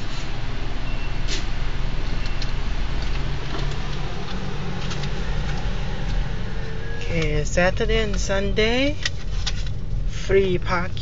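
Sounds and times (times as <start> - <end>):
car engine hum from cabin: 0.0 - 11.0.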